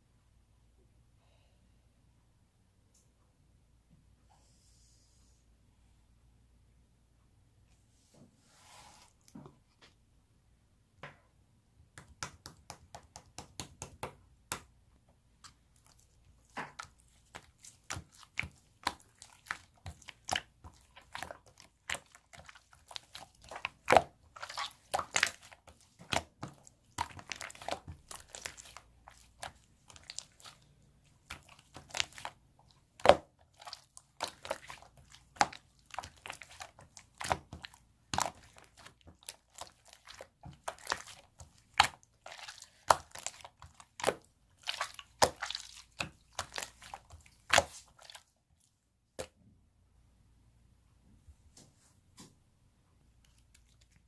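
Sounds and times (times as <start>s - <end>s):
slime squished by hand: 15.4s - 48.3s.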